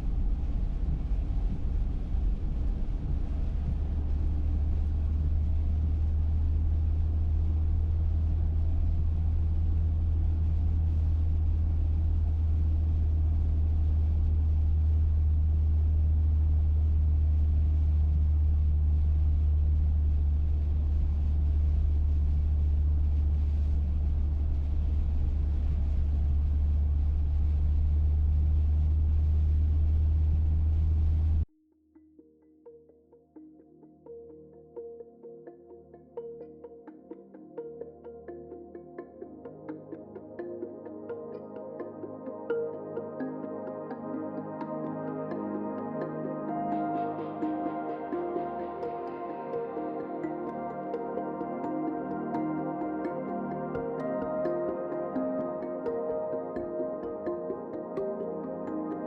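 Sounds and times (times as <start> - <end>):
faint hum: 0.0 - 31.5
vehicle low rumble: 0.0 - 31.5.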